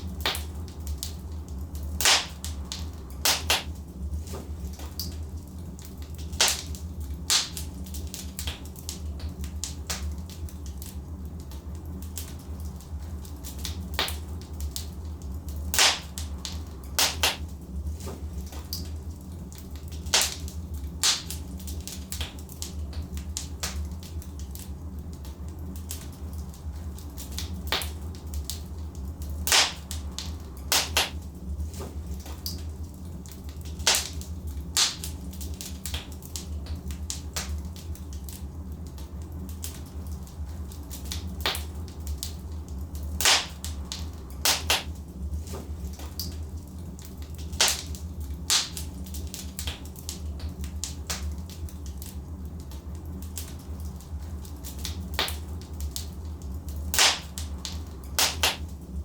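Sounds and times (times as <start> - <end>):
logs crackling and popping in fire: 0.0 - 59.0
low fire rumble: 0.0 - 59.0.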